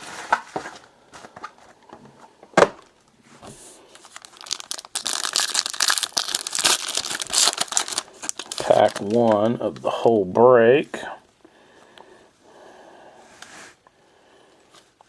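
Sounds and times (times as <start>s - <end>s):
card pack wrapper crinkling and tearing: 3.9s - 10.1s.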